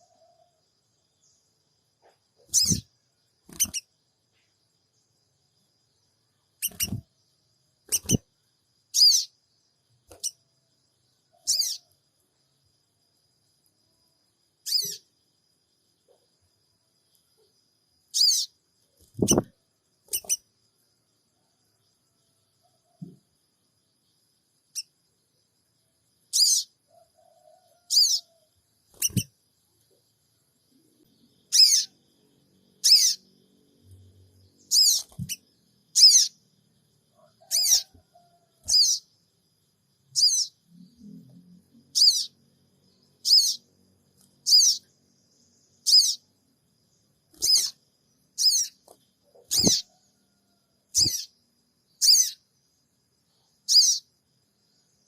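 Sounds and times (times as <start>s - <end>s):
bird chirping high-pitched: 2.5s - 2.9s, 3.5s - 3.9s, 6.6s - 7.1s, 7.9s - 8.3s, 8.9s - 9.4s, 11.4s - 11.8s, 14.6s - 15.0s, 18.1s - 19.5s, 20.1s - 20.4s, 26.3s - 26.7s, 27.9s - 28.3s, 29.0s - 29.3s, 31.5s - 32.0s, 32.8s - 33.3s, 34.6s - 36.4s, 37.5s - 38.0s, 38.7s - 39.1s, 40.1s - 40.6s, 41.9s - 42.4s, 43.2s - 43.7s, 44.4s - 44.9s, 45.8s - 46.2s, 47.4s - 47.8s, 48.4s - 49.9s, 50.9s - 51.4s, 52.0s - 52.4s, 53.7s - 54.1s.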